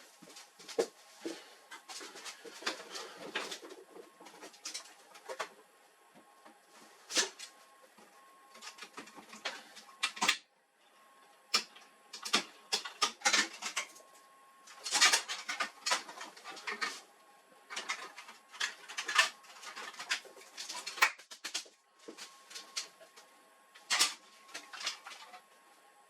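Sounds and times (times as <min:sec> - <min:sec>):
plastic and metal parts rattling: 0:00.3 - 0:05.6, 0:11.6 - 0:14.0, 0:14.7 - 0:17.0, 0:17.7 - 0:23.0, 0:23.8 - 0:25.4.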